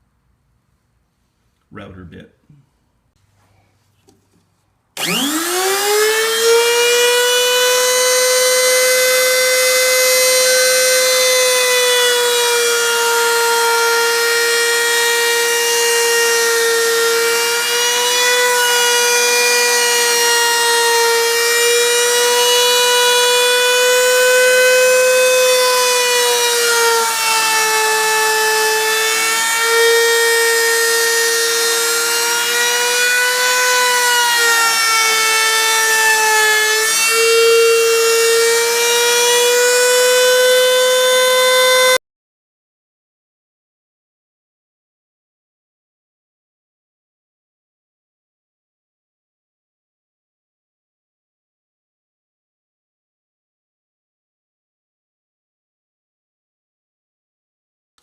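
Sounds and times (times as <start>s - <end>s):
router bit high-pitched whine: 5.0s - 42.0s.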